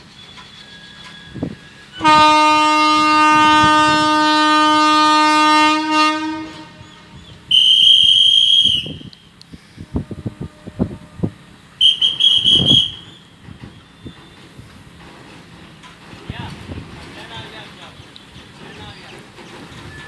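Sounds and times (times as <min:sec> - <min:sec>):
locomotive horn blasts: 0:01.3 - 0:09.3, 0:09.9 - 0:13.2.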